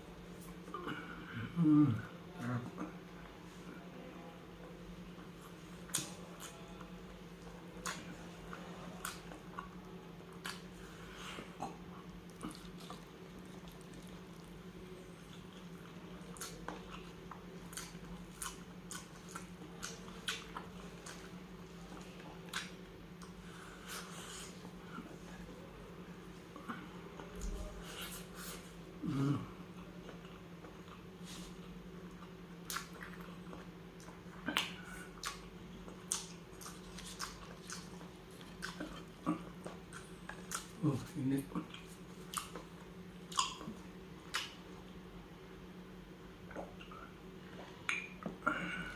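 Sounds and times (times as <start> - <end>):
steady low hum: 0.0 - 48.9
wet chewing and lip smacks: 15.3 - 23.4, 32.0 - 40.8, 41.5 - 44.6, 47.6 - 48.4
mouth smacks and clicks: 47.9 - 48.4.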